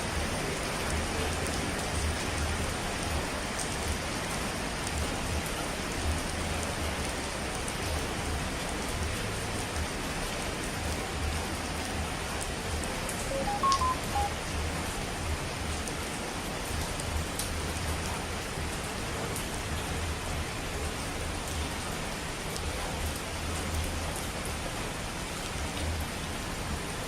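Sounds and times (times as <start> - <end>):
steady rain falling: 0.0 - 27.0
short beeps at different pitches: 13.3 - 14.4.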